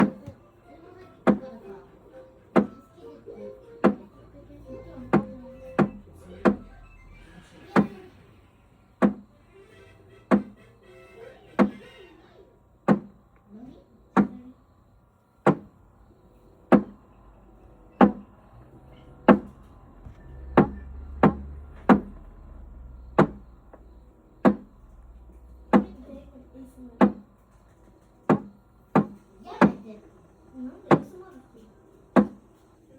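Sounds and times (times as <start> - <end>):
ice maker knocking sharply: 10.3 - 10.6, 23.2 - 23.4, 24.4 - 24.8
low hum: 16.0 - 29.4.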